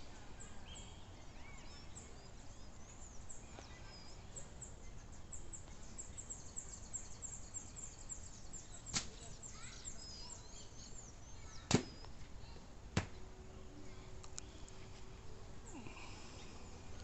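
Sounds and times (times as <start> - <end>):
birds chirping and calling: 0.0 - 12.6.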